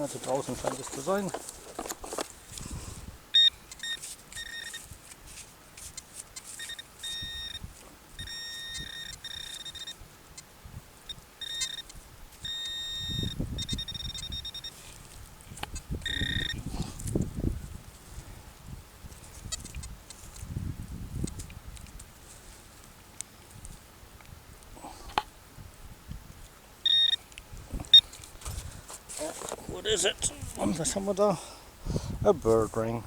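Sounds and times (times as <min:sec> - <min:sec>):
soil rustling: 0:00.0 - 0:33.0
metal detector beeping: 0:03.3 - 0:05.2, 0:05.8 - 0:15.1, 0:15.7 - 0:16.7, 0:26.8 - 0:27.3, 0:27.9 - 0:28.2.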